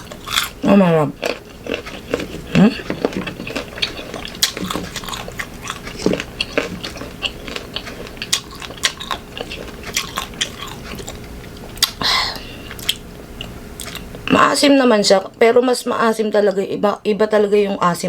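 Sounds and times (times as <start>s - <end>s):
crunching and chewing mango: 0.0s - 12.0s, 12.6s - 14.3s.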